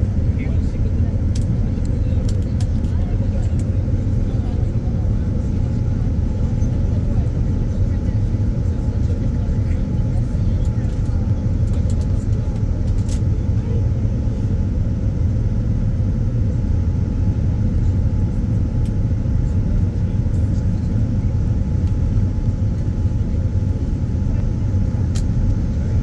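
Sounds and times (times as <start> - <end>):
aircraft cabin engine rumble: 0.0 - 26.0.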